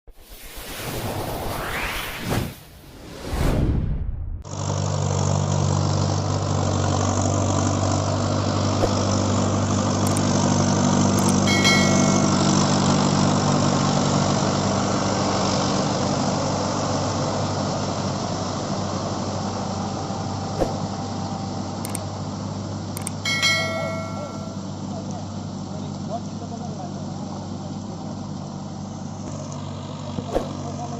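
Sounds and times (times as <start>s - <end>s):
brief swoosh: 0.1s - 4.4s
tractor diesel engine droning: 4.4s - 30.9s.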